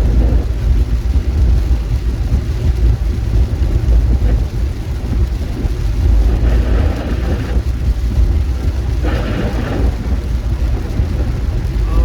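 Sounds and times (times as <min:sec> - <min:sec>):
vehicle rumble from inside: 0:00.0 - 0:12.0
hiss of rain or road spray: 0:08.9 - 0:12.0.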